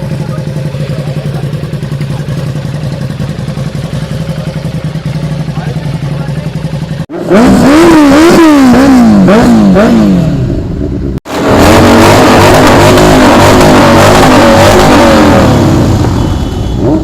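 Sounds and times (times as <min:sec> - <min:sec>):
superbike engine revving: 0:00.0 - 0:17.0
engine running at high revs: 0:07.1 - 0:17.0.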